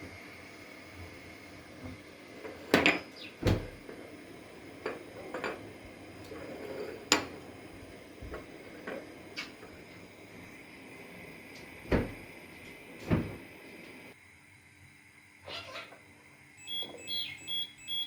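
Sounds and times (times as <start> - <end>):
dishes clinking: 4.8 - 5.6.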